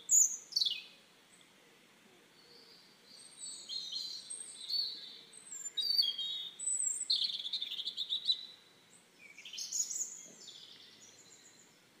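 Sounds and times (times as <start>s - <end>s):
small birds singing: 0.0s - 12.0s.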